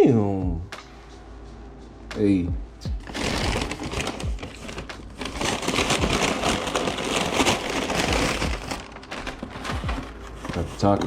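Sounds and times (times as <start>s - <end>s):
food packaging rustling and crinkling: 3.0s - 11.0s.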